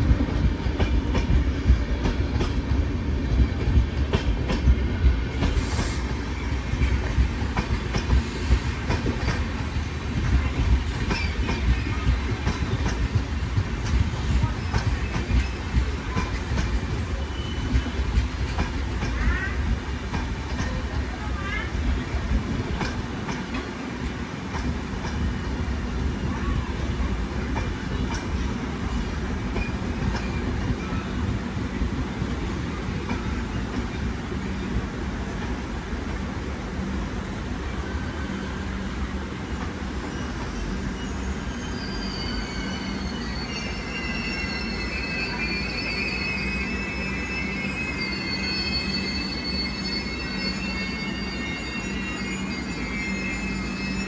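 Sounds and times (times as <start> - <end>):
train rumbling on rails: 0.0 - 54.0
high-pitched wheel squeal: 40.0 - 54.0.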